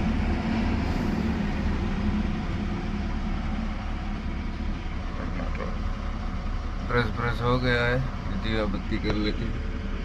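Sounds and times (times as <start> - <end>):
motor vehicles rumbling: 0.0 - 10.0.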